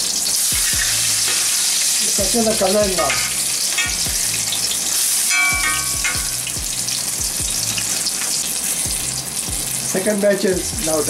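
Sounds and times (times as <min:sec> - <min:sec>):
food frying in hot oil: 0:00.0 - 0:11.0
metal spatula ringing against pan: 0:03.0 - 0:04.0, 0:05.2 - 0:06.4.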